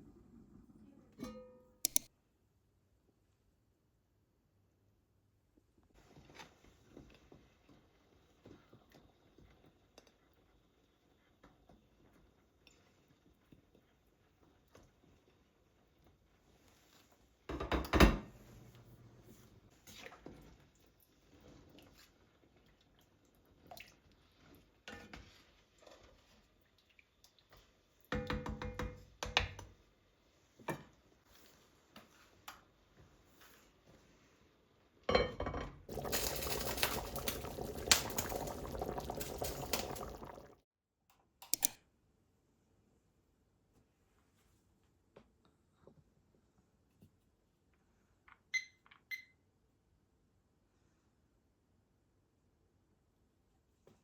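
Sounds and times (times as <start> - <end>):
kitchenware knocks and clinks: 17.5 - 18.4
liquid pouring: 35.9 - 40.6.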